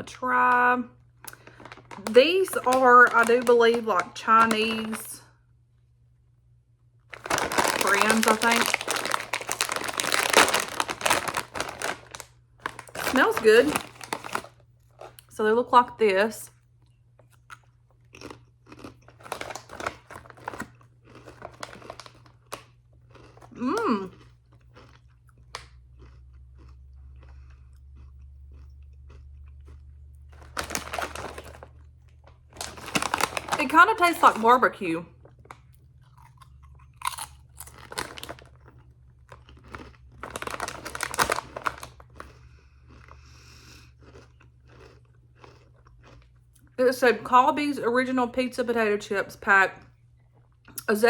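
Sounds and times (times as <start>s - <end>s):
foil bag crinkling: 0.0s - 5.2s, 7.1s - 15.4s, 18.8s - 24.0s, 30.3s - 36.4s, 37.0s - 42.5s
potato chips crunching: 0.0s - 5.2s, 7.1s - 47.3s.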